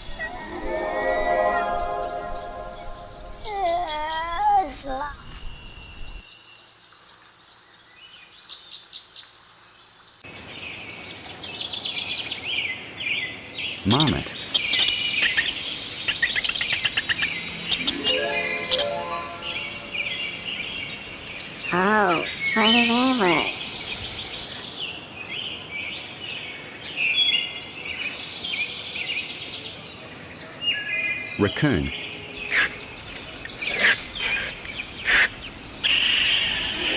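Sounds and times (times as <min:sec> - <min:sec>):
faint outdoor hiss: 0:00.0 - 0:36.9
birds chirping: 0:10.3 - 0:36.9.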